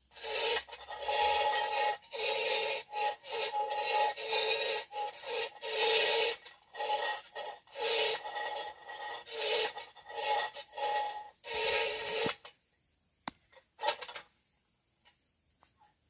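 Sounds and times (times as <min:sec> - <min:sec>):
short scrape: 0:00.1 - 0:12.6, 0:13.8 - 0:14.3
sharp click: 0:13.2 - 0:13.6.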